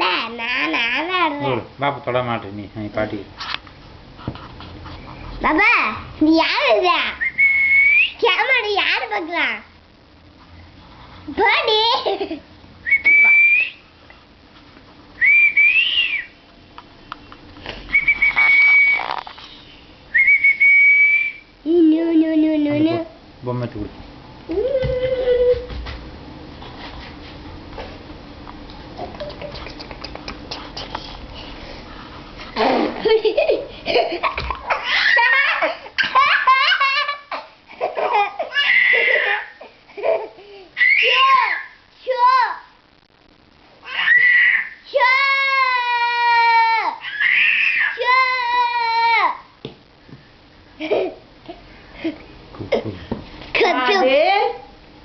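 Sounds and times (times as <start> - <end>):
young child laughing and squealing: 18.1 - 19.2, 24.5 - 25.7, 32.6 - 41.8, 43.9 - 49.4.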